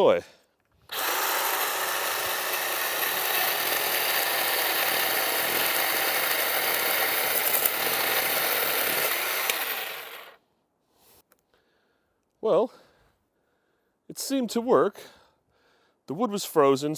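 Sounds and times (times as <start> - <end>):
electric chainsaw cutting wood: 0.9 - 10.4.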